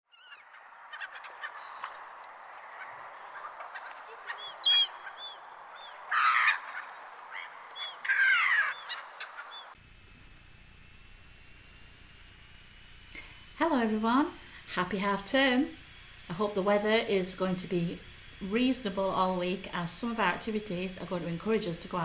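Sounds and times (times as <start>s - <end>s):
flock of birds chirping: 0.1s - 9.8s
harsh bird calls: 0.1s - 9.8s.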